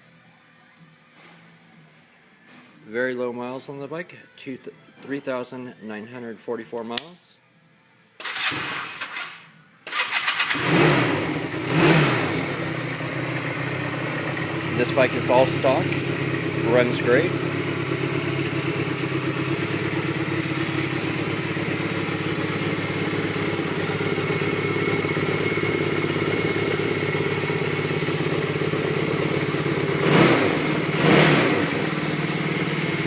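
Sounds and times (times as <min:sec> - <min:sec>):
motorcycle engine idling and revving: 0:08.2 - 0:33.0.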